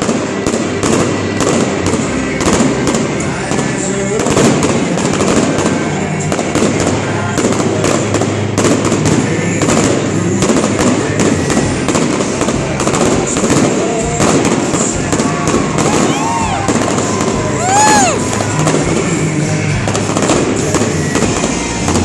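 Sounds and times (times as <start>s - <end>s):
fireworks crackling and banging: 0.0s - 22.0s
firework whistles: 12.2s - 19.2s.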